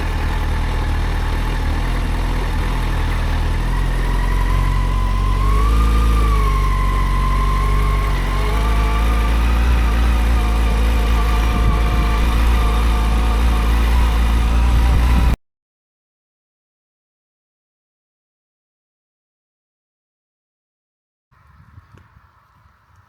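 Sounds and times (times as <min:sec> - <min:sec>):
engine whine: 0:00.0 - 0:15.4
motorcycle engine running: 0:00.0 - 0:15.4.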